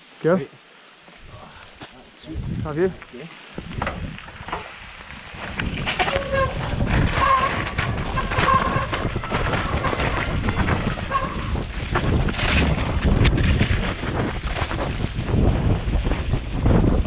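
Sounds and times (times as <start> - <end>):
wind buffeting microphone: 1.2 - 17.0
bike knocks and rattles: 3.6 - 4.7, 5.4 - 17.0.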